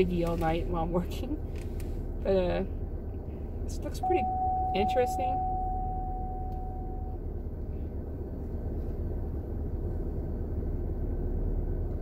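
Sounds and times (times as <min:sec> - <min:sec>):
car engine idling: 0:00.0 - 0:12.0
faint high tone: 0:04.0 - 0:07.2.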